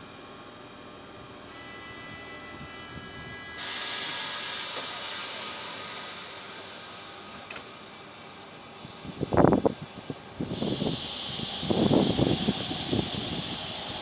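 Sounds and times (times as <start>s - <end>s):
compressed air hiss: 3.6s - 7.2s, 10.4s - 14.0s.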